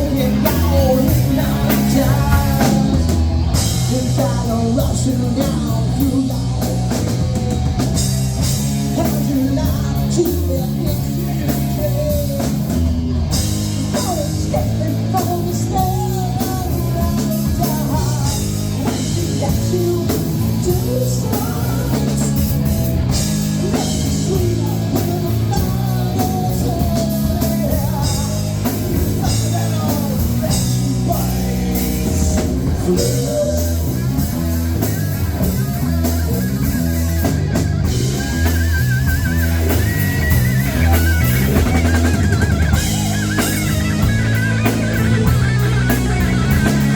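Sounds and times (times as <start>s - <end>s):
person singing: 0.0s - 7.2s, 8.8s - 12.9s, 13.8s - 22.6s, 23.6s - 34.5s
drum kit beat: 0.0s - 46.9s
electric guitar: 0.0s - 46.9s.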